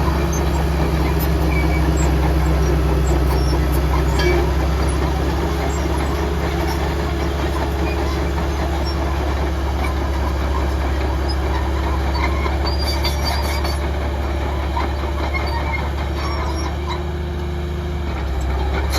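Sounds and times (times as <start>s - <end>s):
heavy diesel machinery droning: 0.0s - 18.9s
metallic clicks and squeaks: 0.2s - 5.0s, 9.8s - 13.9s, 14.8s - 17.0s.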